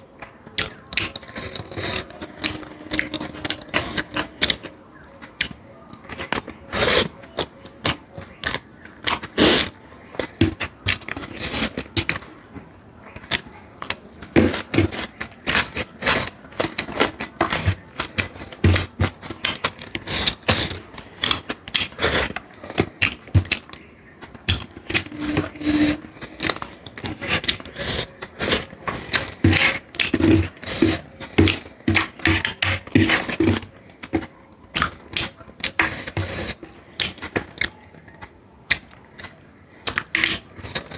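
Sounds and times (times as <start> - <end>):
person chewing food: 0.0 - 40.9.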